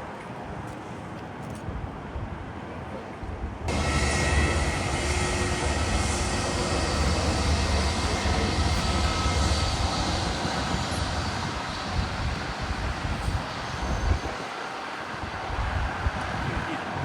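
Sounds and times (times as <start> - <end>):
faint high whine: 3.7 - 15.7
jet engines roaring: 3.7 - 17.0.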